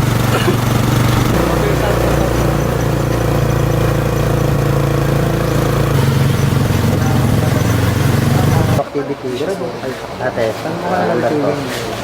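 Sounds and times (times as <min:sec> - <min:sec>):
engine running loudly: 0:00.0 - 0:08.8.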